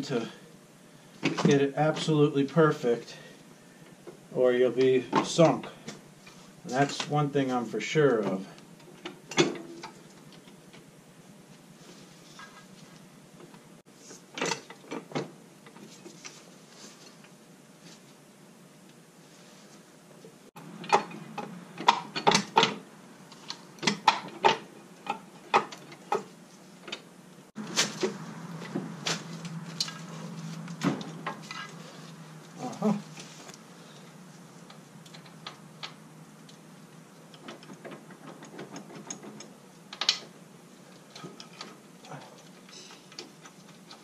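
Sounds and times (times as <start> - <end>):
metal clanks and scrapes: 29.1 - 33.4.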